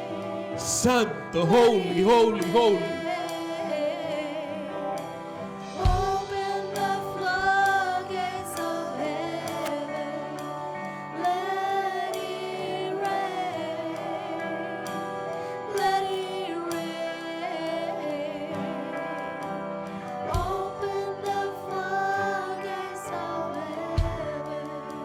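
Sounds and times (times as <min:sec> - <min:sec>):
voices singing worship music: 0:00.0 - 0:25.0
sustained instrumental chords: 0:00.6 - 0:03.3.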